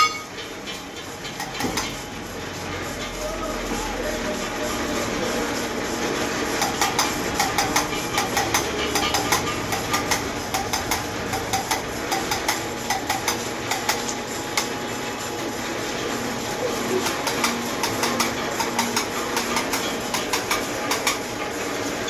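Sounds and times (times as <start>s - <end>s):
steady hum: 0.0s - 0.4s.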